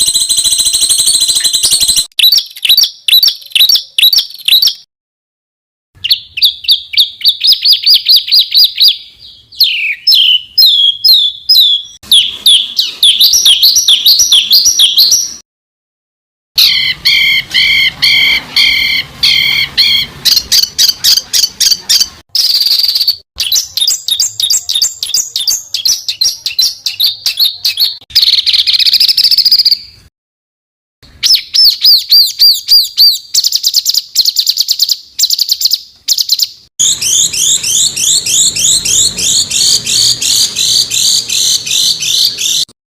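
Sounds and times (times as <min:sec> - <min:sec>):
songbirds trilling: 0:06.0 - 0:15.4, 0:16.6 - 0:29.7, 0:31.2 - 0:42.7.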